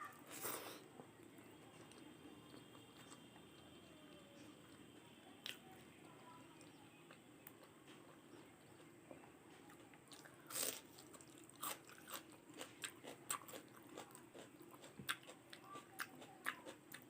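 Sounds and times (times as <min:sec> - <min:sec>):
crisp chewing crunches: 0:09.7 - 0:17.0
person biting crunchy food: 0:10.5 - 0:10.9.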